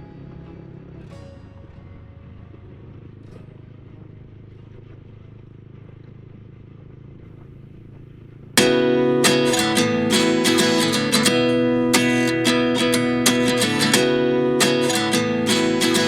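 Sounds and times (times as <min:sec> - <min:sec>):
strummed acoustic guitar music: 0:00.0 - 0:04.0, 0:08.6 - 0:16.0
motorbike engine rumbling: 0:00.0 - 0:16.0.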